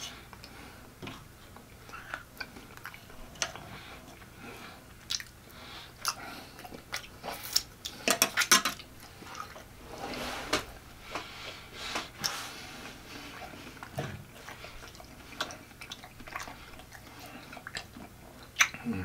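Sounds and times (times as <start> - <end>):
wet chewing: 0.0 - 9.8, 11.0 - 19.0
lip smacking: 1.5 - 9.7, 12.0 - 18.9.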